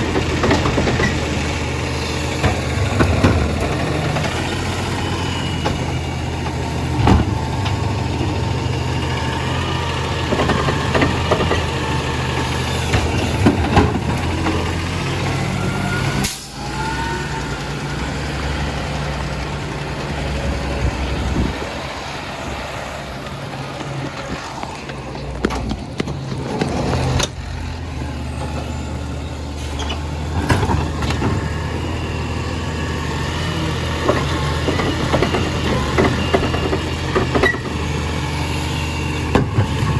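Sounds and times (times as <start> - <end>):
truck engine running: 0.0 - 39.9
sharp knocks and clanks: 2.4 - 8.3, 10.3 - 11.9, 12.5 - 14.8.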